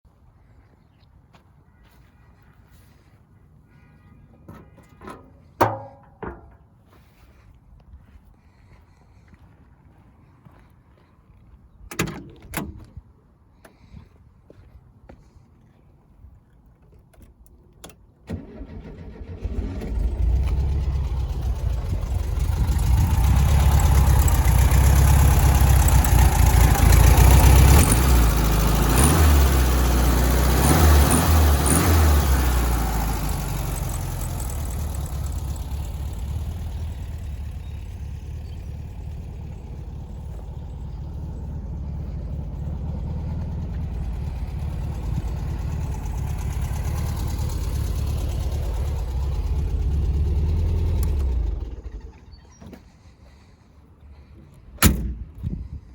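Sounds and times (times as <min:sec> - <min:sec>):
engine starting and idling: 0:18.2 - 0:55.9.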